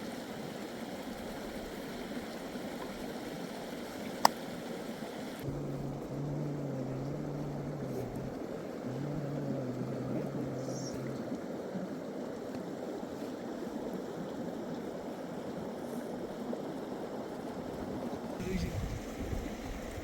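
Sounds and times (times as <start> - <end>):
low droning hum: 5.4 - 11.6.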